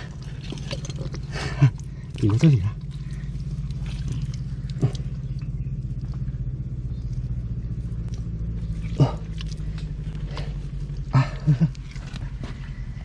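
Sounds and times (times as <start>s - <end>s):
low mechanical drone: 0.0s - 13.0s
grunt-like voice: 8.9s - 9.4s.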